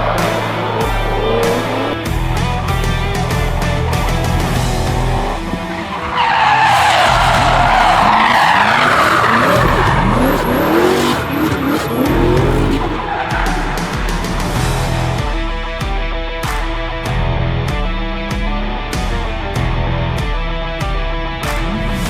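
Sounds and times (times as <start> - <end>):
car engine revving: 0.0 - 16.0
rock music: 0.0 - 22.0
tyres squealing: 3.8 - 15.4.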